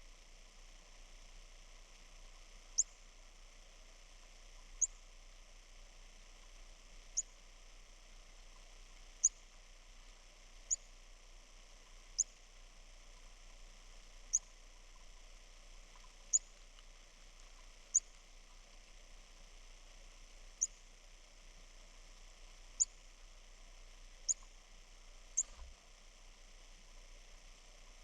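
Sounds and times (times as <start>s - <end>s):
small bird chirping: 2.8s - 3.0s, 4.8s - 5.0s, 7.1s - 7.4s, 9.2s - 9.5s, 10.7s - 10.9s, 12.2s - 12.4s, 14.3s - 14.6s, 15.9s - 16.6s, 17.9s - 18.2s, 20.6s - 20.8s, 22.8s - 23.0s, 24.3s - 24.5s, 25.3s - 25.6s.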